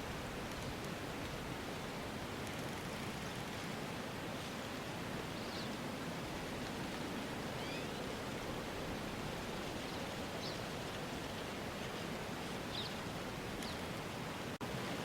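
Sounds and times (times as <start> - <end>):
rustling wind hiss: 0.0 - 15.0
faint high bird chirps: 7.6 - 8.0.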